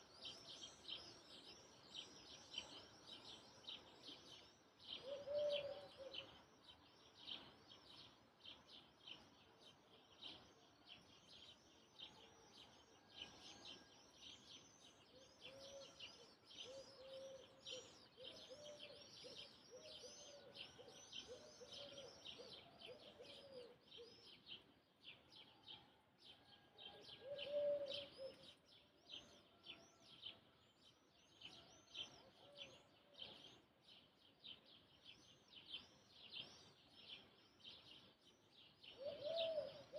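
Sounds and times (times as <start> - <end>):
lower bird calls: 0.0 - 7.9, 14.7 - 25.3, 26.4 - 28.6, 35.3 - 39.9
small birds chirping: 0.0 - 39.9.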